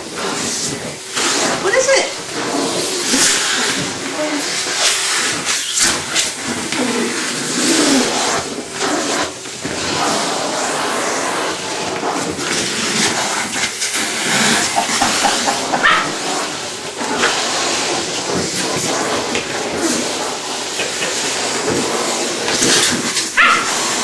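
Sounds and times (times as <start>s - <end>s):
vacuum cleaner running: 0.0s - 24.0s
dog growling and barking: 14.4s - 17.3s, 23.4s - 24.0s.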